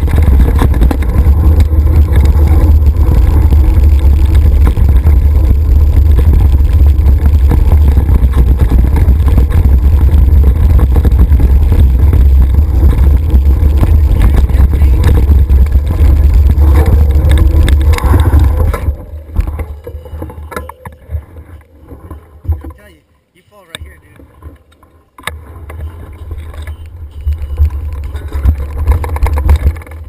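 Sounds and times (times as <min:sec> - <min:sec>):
wind buffeting microphone: 0:00.0 - 0:22.7.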